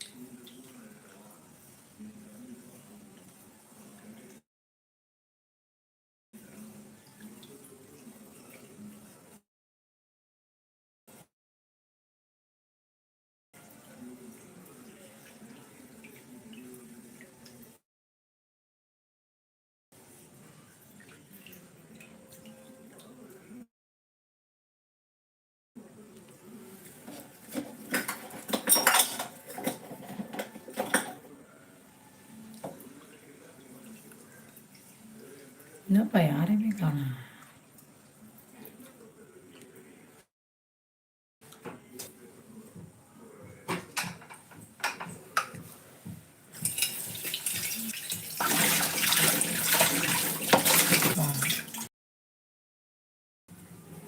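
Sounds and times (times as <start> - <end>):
tap water running: 26.9 - 31.1, 44.0 - 51.9
dishes and cutlery clattering: 27.0 - 31.3, 43.7 - 45.6, 46.6 - 51.2.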